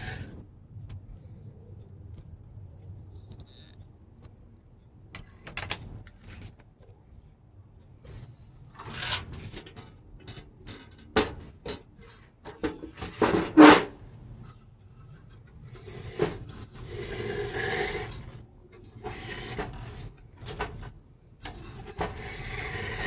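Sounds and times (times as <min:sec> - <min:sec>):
objects scraping: 0:15.0 - 0:20.9, 0:21.5 - 0:23.0.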